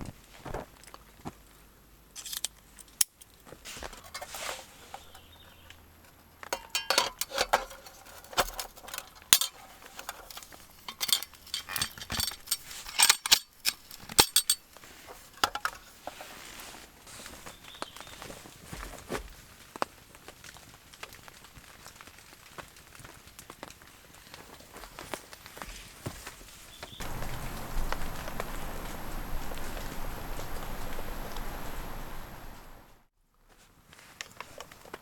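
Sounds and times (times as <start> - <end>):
metal cookware clinking: 6.5 - 14.7.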